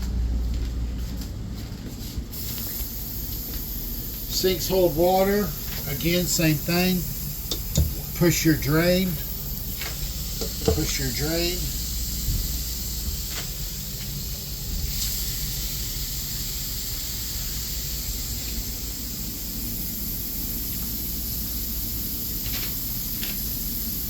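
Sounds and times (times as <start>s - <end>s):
faucet water running into sink: 4.3s - 11.8s.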